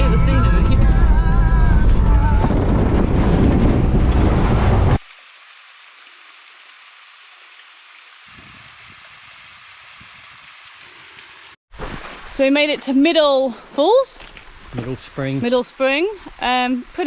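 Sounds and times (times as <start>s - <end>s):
song on car stereo: 0.0s - 2.5s
vehicle rumbling on rough track: 0.0s - 5.0s
waterfall hiss: 5.0s - 11.6s.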